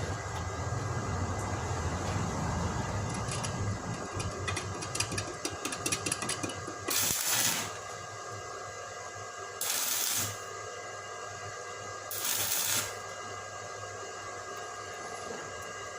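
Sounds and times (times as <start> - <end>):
low hum: 0.0 - 8.0
welding arc crackling and popping: 3.0 - 8.0, 9.6 - 10.4, 12.1 - 13.0.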